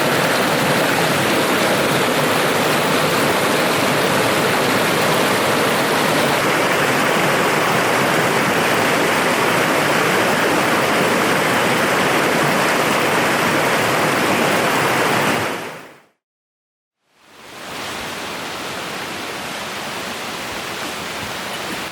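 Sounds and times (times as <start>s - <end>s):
loud rushing noise: 0.0s - 15.9s.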